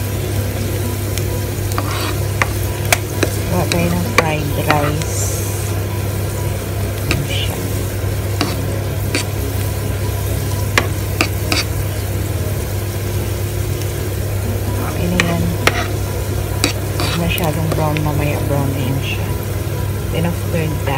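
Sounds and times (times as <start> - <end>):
garlic sizzling in oil: 0.0 - 20.9
spoon clicking and scraping pan: 10.8 - 11.7, 15.2 - 16.0, 16.6 - 17.8.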